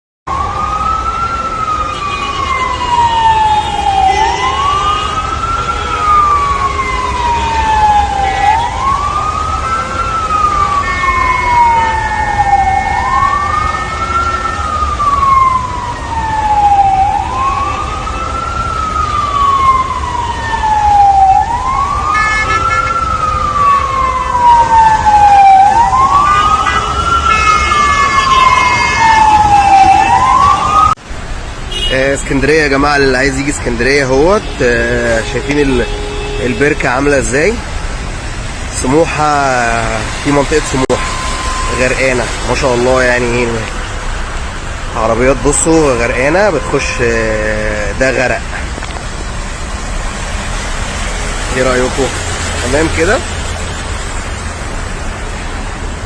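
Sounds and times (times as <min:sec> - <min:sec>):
wailing siren: 0:00.3 - 0:31.0, 0:32.7 - 0:56.0.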